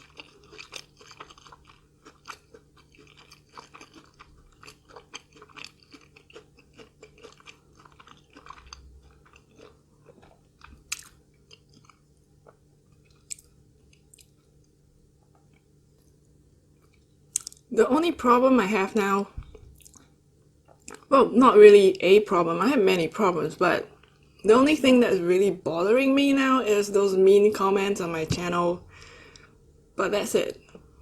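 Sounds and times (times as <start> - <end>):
chewing crunchy fried food: 0.0 - 17.7, 19.5 - 21.1, 23.9 - 24.4.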